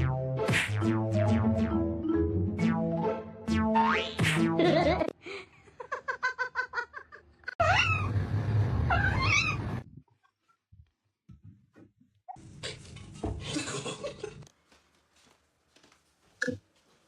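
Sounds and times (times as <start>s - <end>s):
cat meowing: 7.6s - 8.1s, 8.9s - 9.6s.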